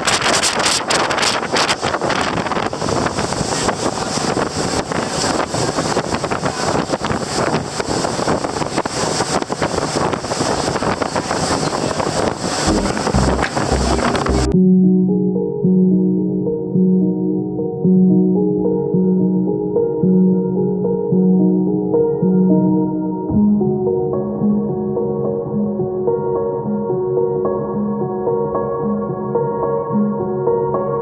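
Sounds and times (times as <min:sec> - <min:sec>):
wind buffeting microphone: 0:00.0 - 0:14.5
boat engine running: 0:12.6 - 0:14.6
background music: 0:12.6 - 0:31.0.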